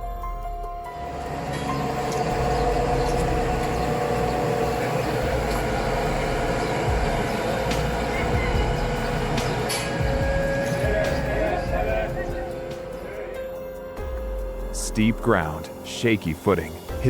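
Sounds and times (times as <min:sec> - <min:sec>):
steady mechanical whine: 0:00.0 - 0:17.0
tractor engine rumbling: 0:01.0 - 0:13.4.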